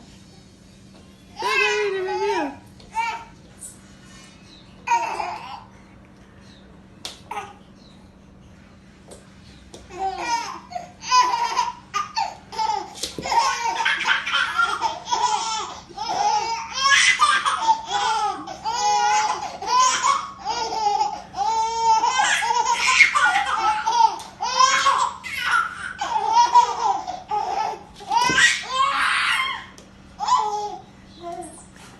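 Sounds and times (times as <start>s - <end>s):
baby laughing hysterically: 10.2s - 29.6s.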